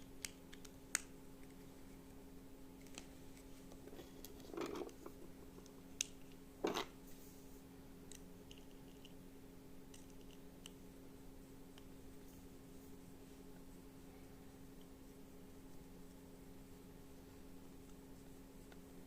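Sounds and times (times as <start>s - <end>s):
steady low hum: 0.0s - 19.0s
parts scraping: 2.8s - 5.4s.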